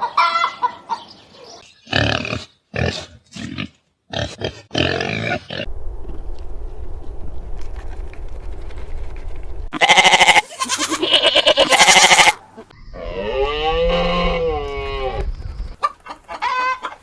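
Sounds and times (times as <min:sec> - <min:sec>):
sheep bleating: 0:09.7 - 0:12.4.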